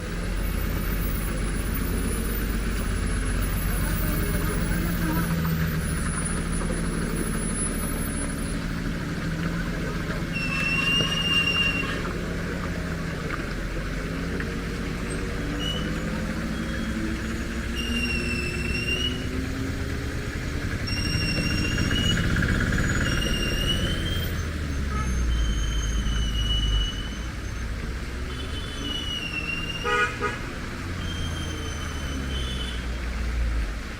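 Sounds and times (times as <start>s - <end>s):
truck engine under load: 0.0s - 28.4s
high whistling squeals: 10.2s - 12.3s, 15.0s - 19.7s, 20.8s - 27.7s, 28.3s - 30.0s, 31.0s - 32.8s.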